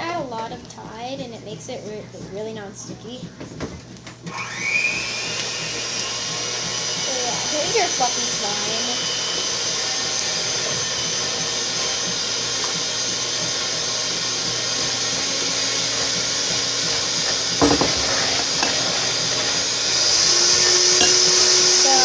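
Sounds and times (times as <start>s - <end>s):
knocks: 17.6s - 18.2s.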